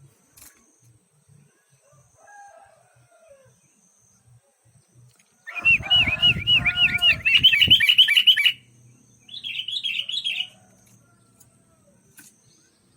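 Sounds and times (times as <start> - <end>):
bulbul singing whistled notes: 5.5 - 10.6.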